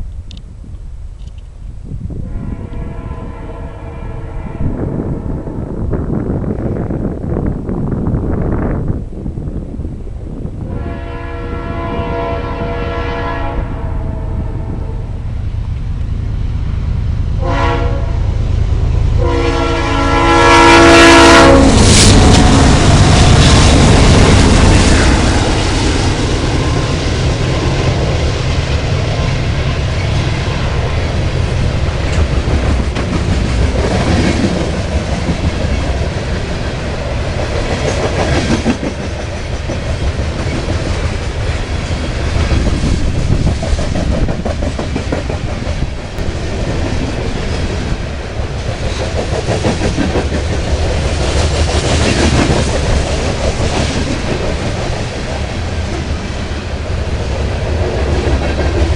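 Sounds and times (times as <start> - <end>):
model train rumble: 11.0 - 58.9.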